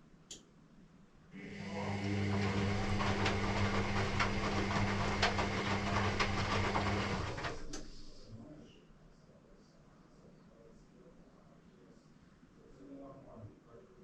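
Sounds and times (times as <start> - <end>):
washing machine motor humming: 1.4 - 8.4.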